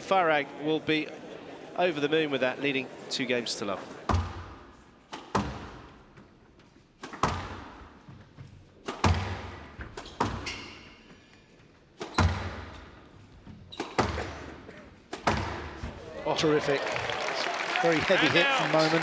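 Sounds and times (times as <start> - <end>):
squash ball struck by rackets: 4.1 - 6.0, 7.0 - 8.0, 8.8 - 10.6, 12.0 - 13.0, 13.8 - 16.0
ball smacking off walls: 7.0 - 7.7, 8.8 - 9.6, 15.1 - 16.0.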